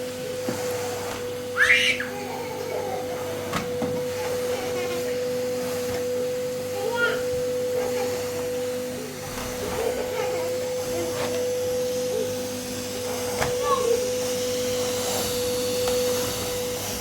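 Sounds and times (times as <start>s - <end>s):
short high cry: 1.6s - 2.2s.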